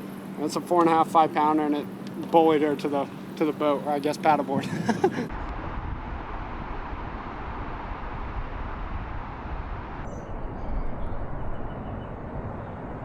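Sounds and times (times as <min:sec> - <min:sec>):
outdoor rumble and hiss: 0:00.0 - 0:11.3.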